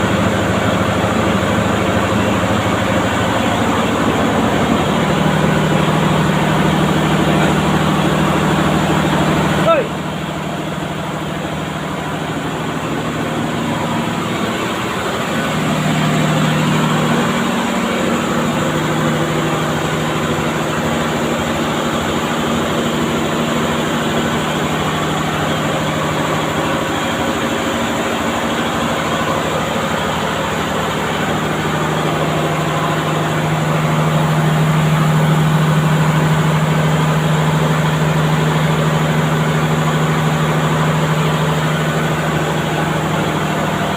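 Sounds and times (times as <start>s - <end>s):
refrigeration compressor droning: 0.0s - 43.9s.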